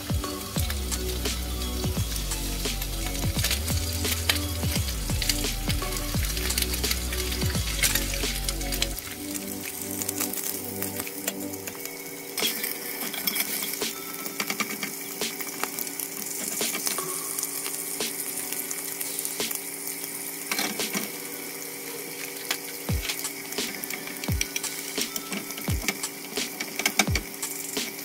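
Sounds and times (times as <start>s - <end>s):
food sizzling in a pan: 0.0s - 28.0s
metal utensil scraping a pan: 12.4s - 14.9s.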